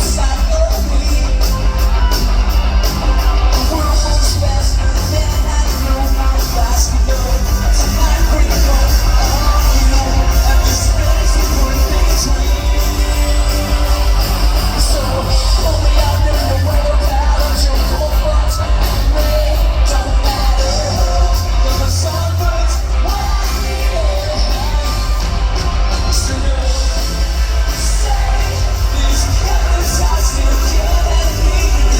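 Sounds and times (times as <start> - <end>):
live rock band playing: 0.0 - 31.9.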